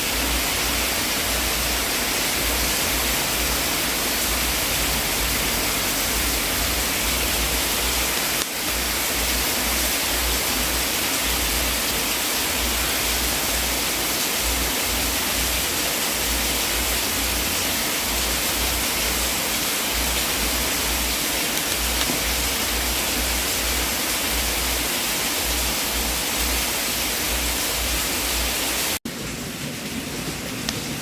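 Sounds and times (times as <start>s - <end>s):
wood fire hissing and rumbling: 0.0s - 31.0s
faint fire crackles: 19.9s - 23.0s.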